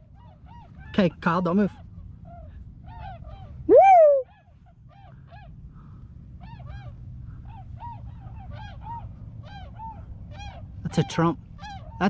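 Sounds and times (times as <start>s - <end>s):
swans bugling: 3.7s - 4.2s.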